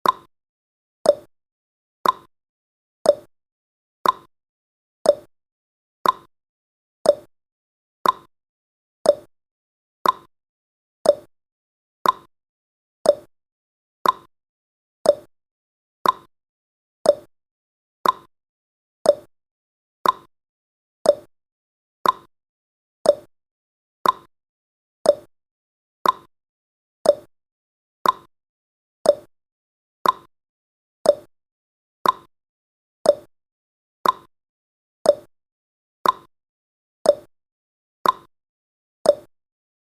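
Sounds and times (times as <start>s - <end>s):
clock ticking: 2.0s - 2.3s, 4.0s - 4.3s, 6.0s - 6.3s, 8.0s - 8.3s, 10.0s - 10.3s, 12.0s - 12.3s, 14.0s - 14.3s, 15.1s - 15.3s, 16.0s - 16.3s, 18.0s - 18.3s, 20.0s - 20.3s, 22.0s - 22.3s, 24.0s - 24.3s, 25.1s - 25.3s, 26.0s - 26.3s, 27.1s - 27.3s, 28.0s - 28.3s, 29.1s - 29.3s, 30.0s - 30.3s, 32.0s - 32.3s, 33.1s - 33.3s, 34.0s - 34.3s, 36.0s - 36.3s, 38.0s - 38.3s.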